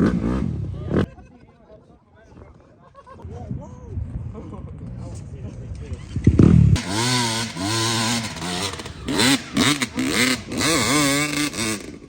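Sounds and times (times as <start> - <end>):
off-road engine revving: 0.0 - 1.1, 6.4 - 12.0.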